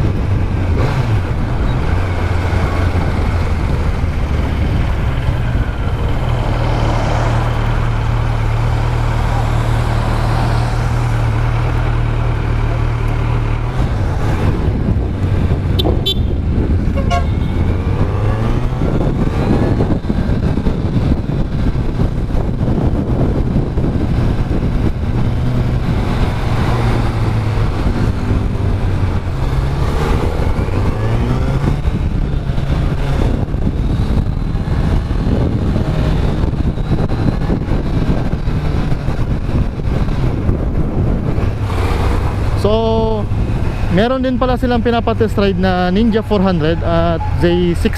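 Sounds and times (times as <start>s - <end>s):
wind rush: 0.0s - 11.4s, 13.6s - 47.9s
motorcycle engine revving: 0.0s - 47.9s
vehicle horn toot: 15.8s - 17.6s.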